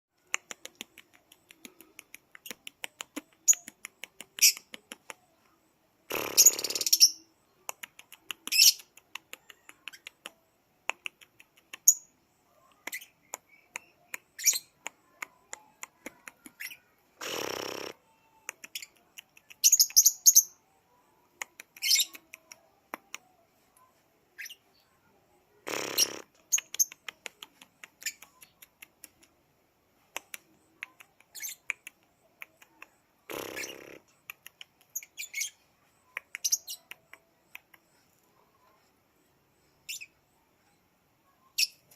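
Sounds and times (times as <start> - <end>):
bird high chirps: 11.8 - 14.8, 18.6 - 20.6, 21.8 - 22.3, 30.9 - 31.8, 34.9 - 37.0, 39.6 - 41.9.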